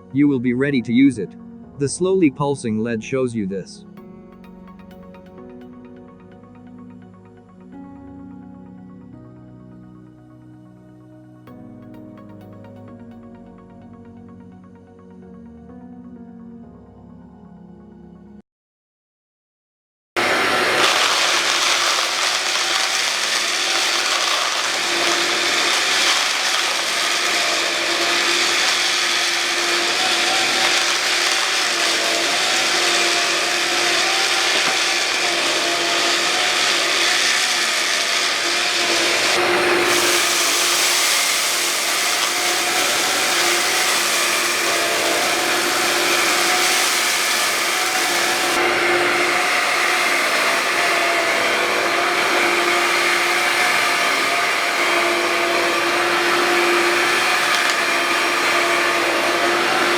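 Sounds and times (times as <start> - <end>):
stick vacuum motor whine: 20.2 - 59.9.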